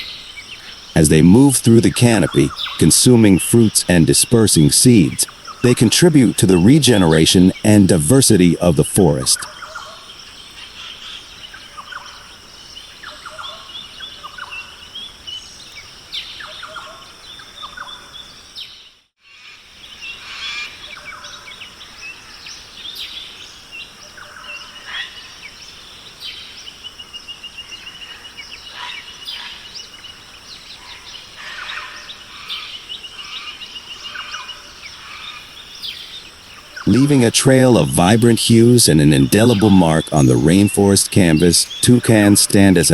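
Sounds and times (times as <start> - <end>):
birds calling and chirping: 0.0 - 42.9.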